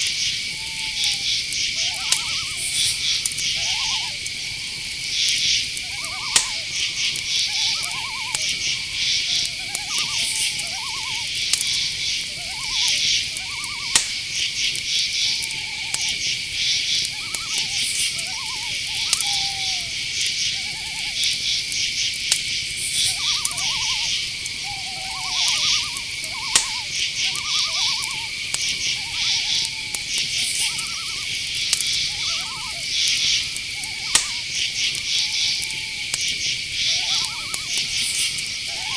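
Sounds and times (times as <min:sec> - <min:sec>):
crickets trilling: 0:00.0 - 0:38.9
owl hooting: 0:00.0 - 0:38.9
sharp clicks: 0:05.0 - 0:08.7, 0:13.3 - 0:14.8, 0:21.2 - 0:38.9.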